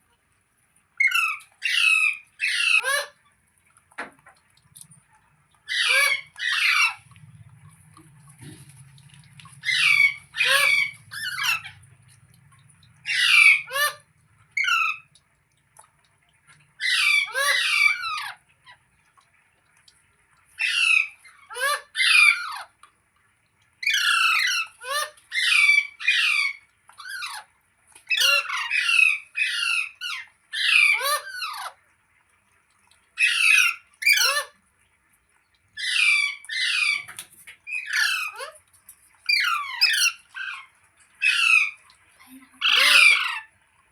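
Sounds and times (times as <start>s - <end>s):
parrot squawking: 1.0s - 3.2s, 5.6s - 7.2s, 9.5s - 11.9s, 13.0s - 15.1s, 16.8s - 18.4s, 20.6s - 22.7s, 23.8s - 27.5s, 28.1s - 31.8s, 33.2s - 34.6s, 35.8s - 38.6s, 39.2s - 43.5s.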